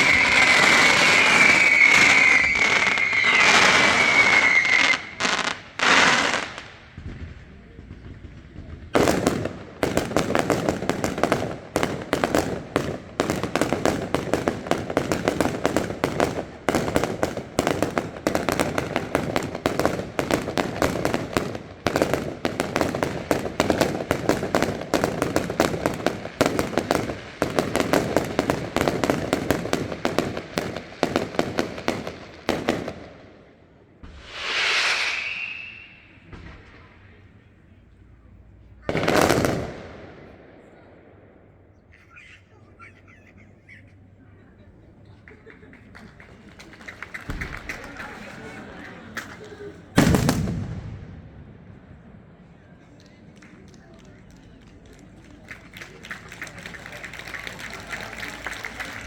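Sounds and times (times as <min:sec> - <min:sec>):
firework whistle falling in pitch: 0:00.0 - 0:05.4, 0:34.1 - 0:36.7
rapid crackling of fireworks: 0:00.0 - 0:59.0.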